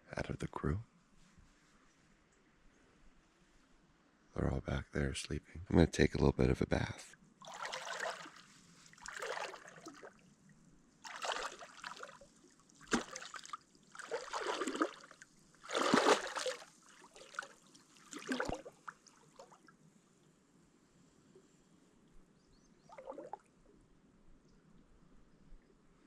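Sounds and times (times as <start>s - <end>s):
water splashing: 7.4s - 10.2s, 11.0s - 19.6s, 22.9s - 23.4s.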